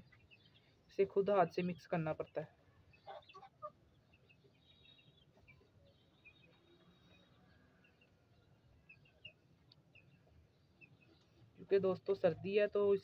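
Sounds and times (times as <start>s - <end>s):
faint bird calls: 2.6s - 11.5s.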